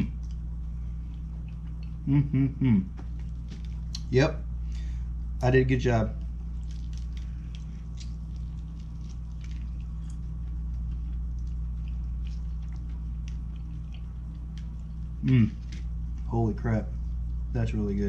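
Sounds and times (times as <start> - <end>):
chewing: 0.0 - 2.0, 3.0 - 4.1, 6.2 - 16.3
steady low hum: 0.0 - 18.0.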